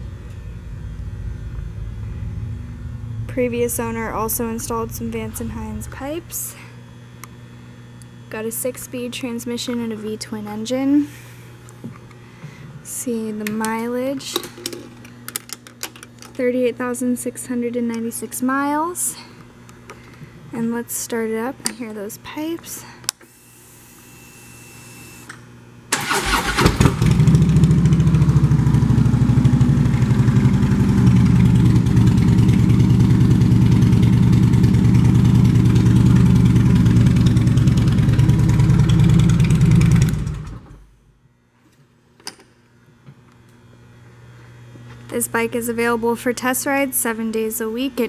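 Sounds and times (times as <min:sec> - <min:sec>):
motorcycle engine idling: 0:00.0 - 0:06.4, 0:26.2 - 0:40.8
motorcycle starter cranking: 0:25.9 - 0:40.8.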